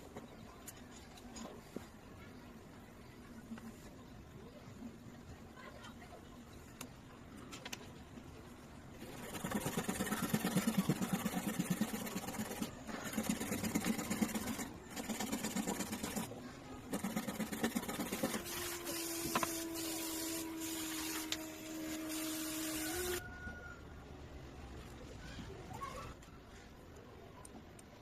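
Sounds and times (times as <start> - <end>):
small electric motor humming: 16.9 - 23.2.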